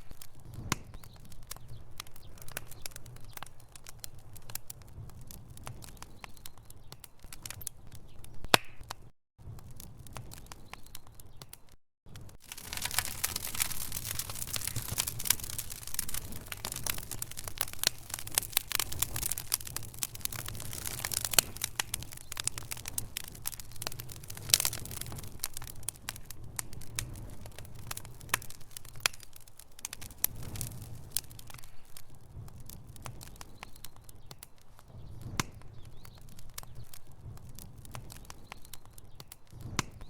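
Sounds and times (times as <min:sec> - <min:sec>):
wood fire crackling and popping: 0:00.0 - 0:40.0.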